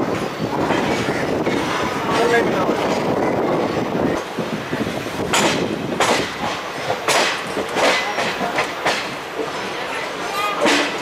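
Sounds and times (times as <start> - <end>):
train coach rumbling: 0.0 - 11.0
wheel clacks over track joints: 5.0 - 9.7, 10.5 - 11.0.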